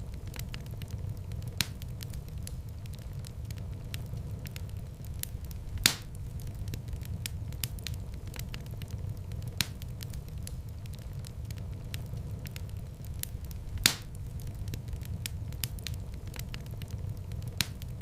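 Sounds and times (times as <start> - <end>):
fireplace fire crackling: 0.0 - 18.0
low rumble of flames: 0.0 - 18.0
sharp loud pop of fire: 5.8 - 6.1.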